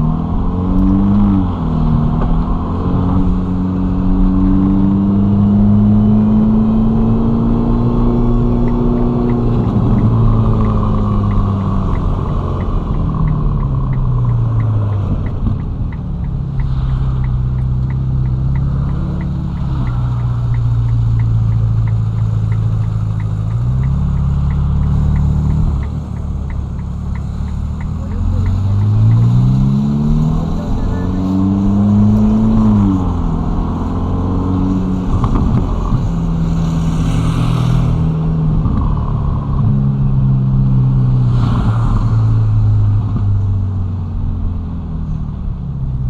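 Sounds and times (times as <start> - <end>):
car engine running at low revs: 0.0 - 46.0
steady light ticking: 8.5 - 32.8.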